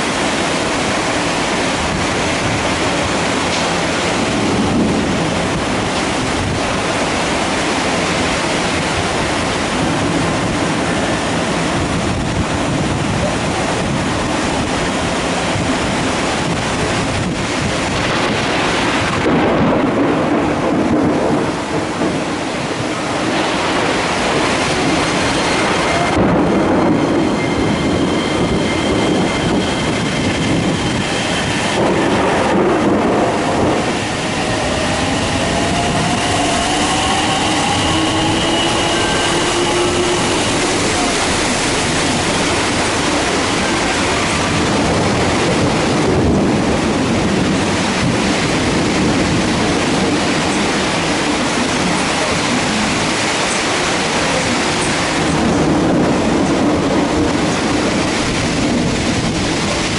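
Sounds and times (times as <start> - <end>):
heavy rain: 0.0 - 59.9
train motors whining: 33.0 - 44.8.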